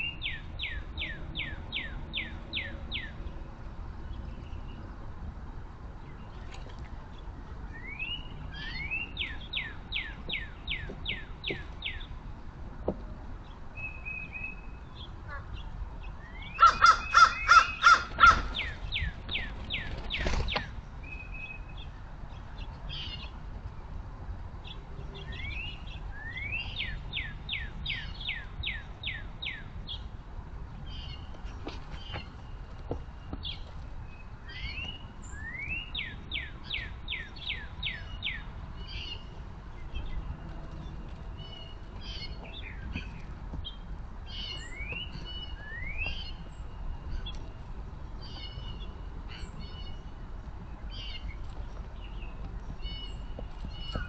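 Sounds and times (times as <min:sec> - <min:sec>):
crow cawing: 0:16.6 - 0:18.5
bird chirps: 0:31.9 - 0:47.6, 0:50.9 - 0:54.0.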